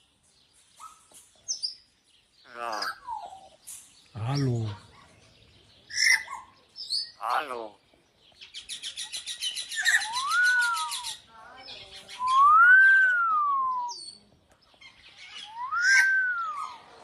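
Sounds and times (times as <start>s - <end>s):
bird whistles: 8.7s - 11.2s, 12.1s - 14.2s, 15.3s - 16.8s.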